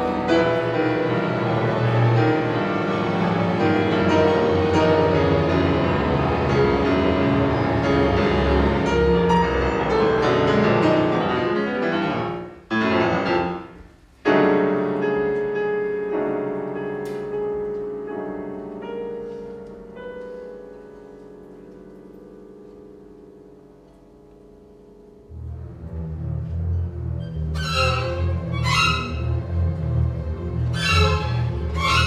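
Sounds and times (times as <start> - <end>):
chamber string orchestra: 0.0 - 13.6, 25.3 - 32.0
piano chords: 0.0 - 32.0
quiet single piano notes: 14.6 - 25.1.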